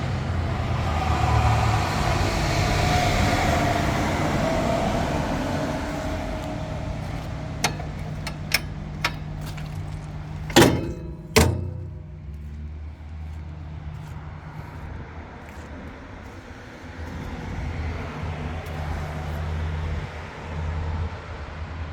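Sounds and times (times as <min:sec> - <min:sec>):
diesel engine running: 0:00.0 - 0:15.0
loud metal clanks: 0:05.9 - 0:13.2.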